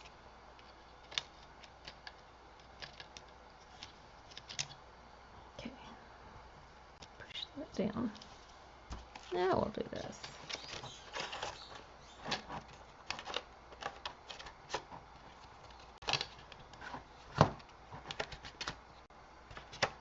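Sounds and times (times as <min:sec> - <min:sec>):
cardstock tapping and rustling: 0:10.2 - 0:18.8.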